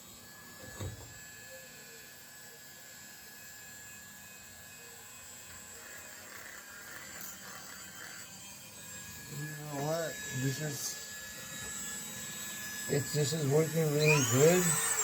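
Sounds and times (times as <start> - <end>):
electric sander whining: 5.7 - 15.0.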